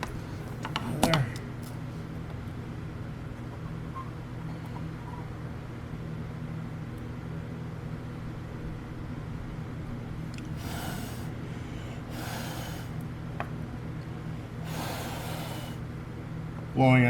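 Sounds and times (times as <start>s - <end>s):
steady low hum: 0.0s - 17.0s
person blowing short breaths: 10.4s - 13.0s, 14.3s - 15.8s.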